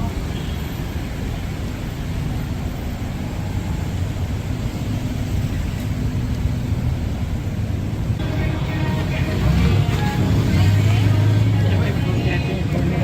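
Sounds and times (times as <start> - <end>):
general hubbub: 0.0 - 4.6, 7.2 - 13.0
city street traffic rumble: 0.0 - 13.0.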